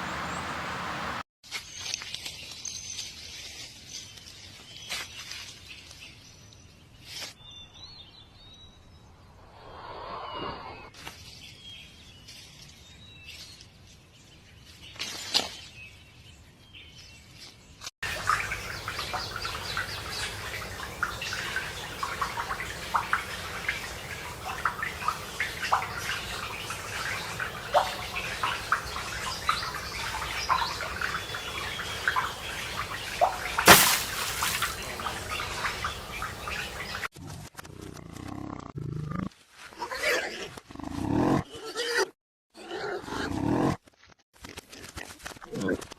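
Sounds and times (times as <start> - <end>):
birds chirping: 0.0 - 1.2, 18.0 - 37.1.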